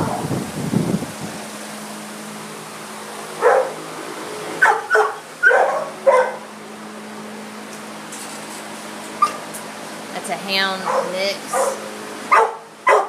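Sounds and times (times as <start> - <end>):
dog barking: 3.4 - 3.8, 4.6 - 6.4, 10.8 - 13.0.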